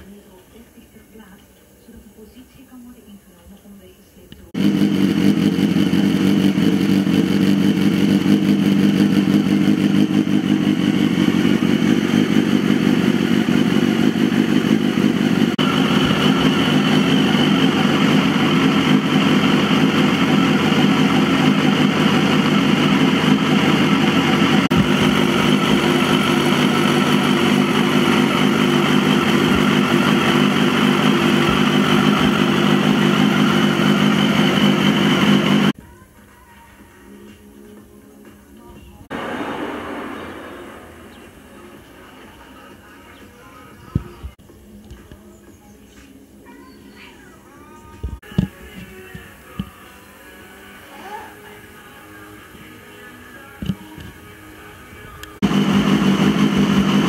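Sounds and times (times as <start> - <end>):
motorcycle engine running: 4.5 - 35.8, 39.1 - 42.3, 55.3 - 57.0.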